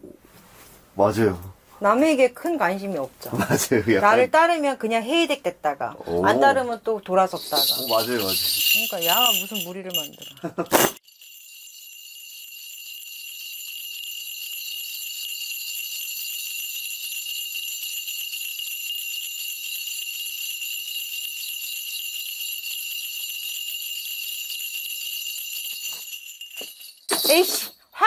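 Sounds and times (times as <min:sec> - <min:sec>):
bells jingling: 0:06.2 - 0:28.0.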